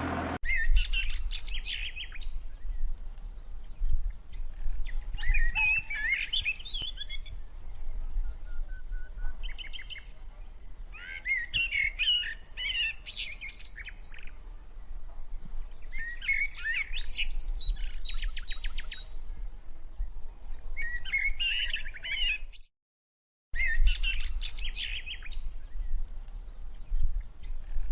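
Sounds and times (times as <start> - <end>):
steady low rumble: 0.0 - 0.4.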